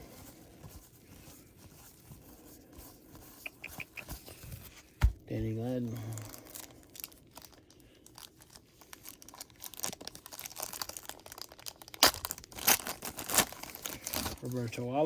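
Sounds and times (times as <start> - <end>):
plastic wrapper crinkling and tearing: 6.0 - 14.8.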